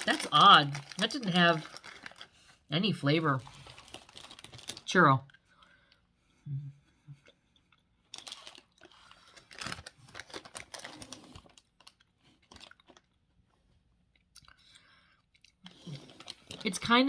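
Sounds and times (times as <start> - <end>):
person chewing: 7.1 - 13.3, 14.1 - 16.6.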